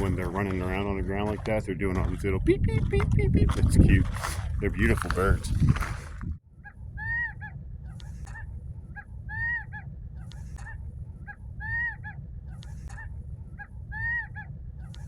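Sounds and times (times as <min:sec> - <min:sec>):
wind rumble on microphone: 0:00.0 - 0:15.0
quail calling: 0:06.6 - 0:15.0.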